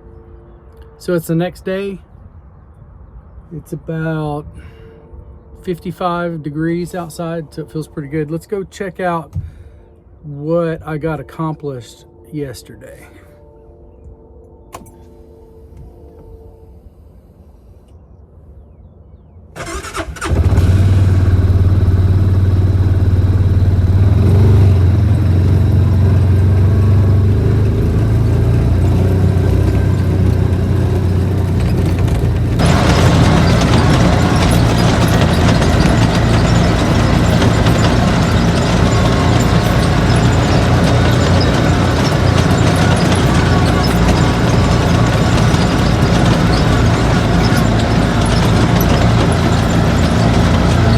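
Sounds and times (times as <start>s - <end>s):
vehicle engine droning: 19.6s - 50.9s.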